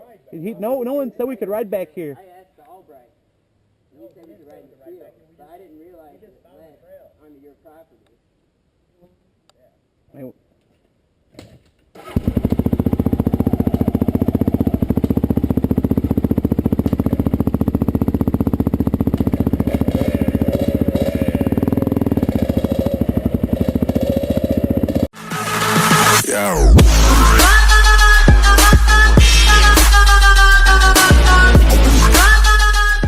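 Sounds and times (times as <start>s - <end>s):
dirt bike engine running: 12.1s - 25.1s.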